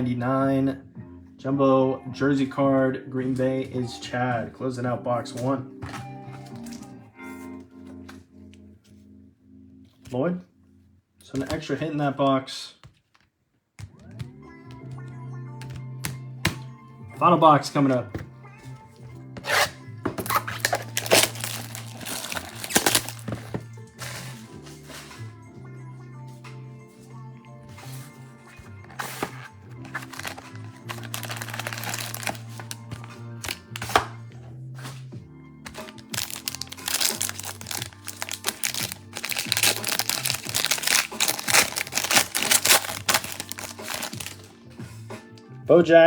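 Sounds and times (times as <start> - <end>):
quiet background music: 0.0 - 46.0
card packaging rustling and tearing: 5.8 - 6.9, 19.4 - 25.2, 28.6 - 34.2, 35.7 - 44.5
plastic wrapping crinkling: 5.9 - 6.9, 19.4 - 25.2, 28.8 - 34.2, 35.7 - 44.5.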